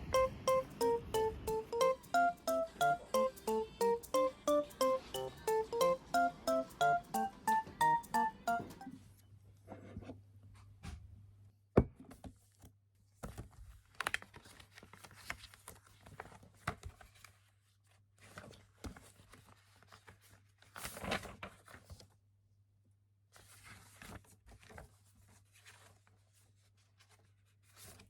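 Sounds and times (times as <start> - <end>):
paper rustling and crinkling: 13.1 - 22.2, 23.4 - 28.0.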